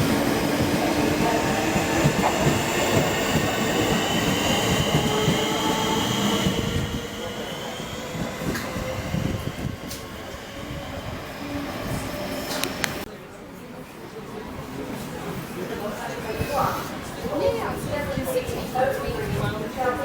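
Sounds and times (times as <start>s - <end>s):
train running: 0.0s - 13.1s.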